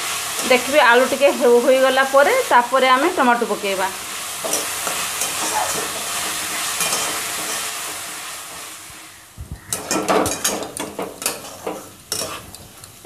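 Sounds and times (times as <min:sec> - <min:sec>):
vegetables sizzling in hot oil: 0:00.0 - 0:13.0
spatula scraping a wok: 0:04.0 - 0:13.0.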